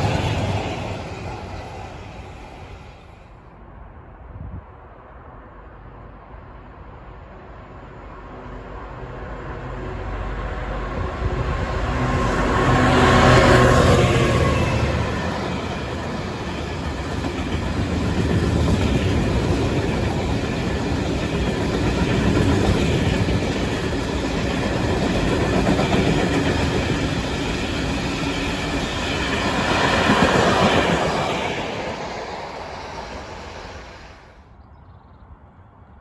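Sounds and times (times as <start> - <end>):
freight train wheels clattering: 15.1 - 31.6.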